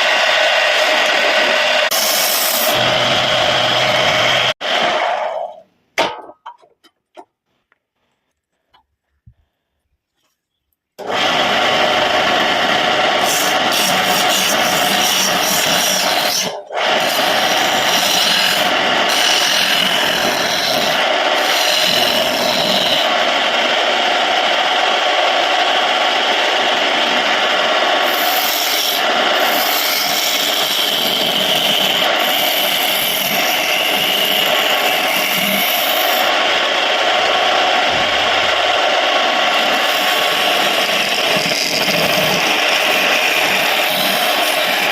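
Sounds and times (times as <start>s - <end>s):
wood lathe running: 0.0s - 5.5s, 11.0s - 44.9s
tool scraping spinning wood: 11.0s - 23.5s, 28.0s - 44.9s.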